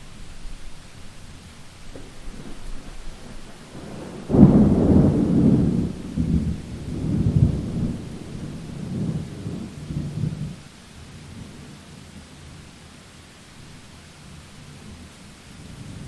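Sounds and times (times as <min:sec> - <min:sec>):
steady rain: 0:00.0 - 0:16.0
thunderclap rumbling: 0:01.9 - 0:10.6.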